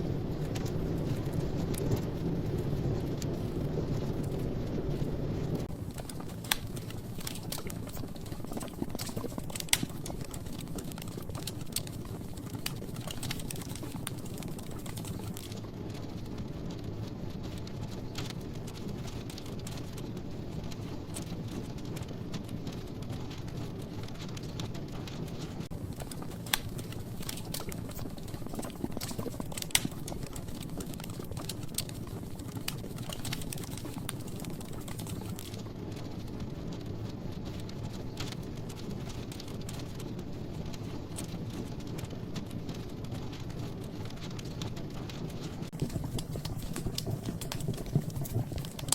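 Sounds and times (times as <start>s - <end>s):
logs crackling and popping: 0.0s - 48.9s
low rumble of flames: 0.0s - 48.9s.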